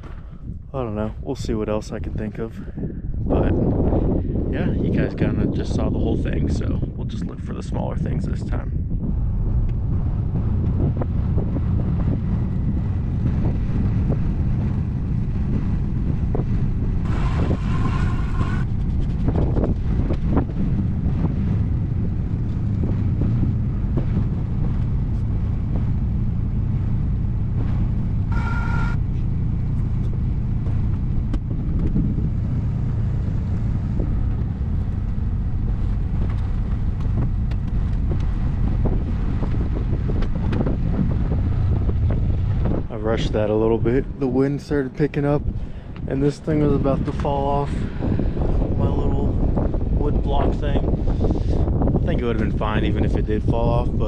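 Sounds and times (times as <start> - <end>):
wind noise on microphone: 0.0 - 54.0
pickup truck engine running: 9.1 - 43.6
short tone: 28.3 - 29.1.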